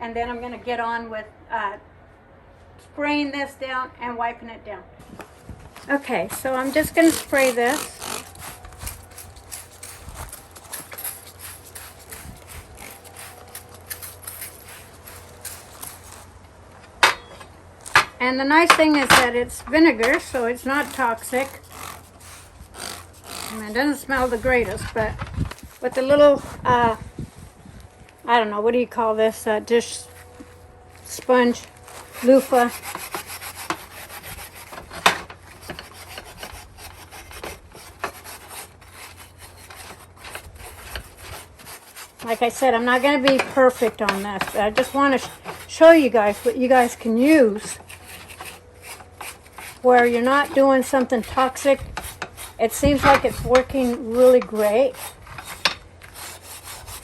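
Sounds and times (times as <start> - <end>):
sponge scrubbing rusty metal: 6.2 - 16.4, 17.9 - 26.6, 31.0 - 57.0.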